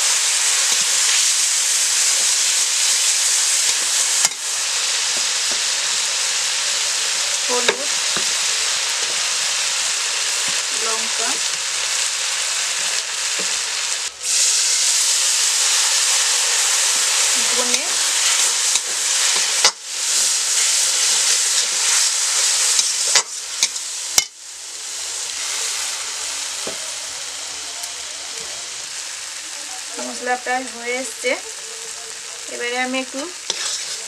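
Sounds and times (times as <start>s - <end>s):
masala sizzling in hot oil: 0.0s - 34.0s
metal spatula scraping pan: 33.4s - 34.0s.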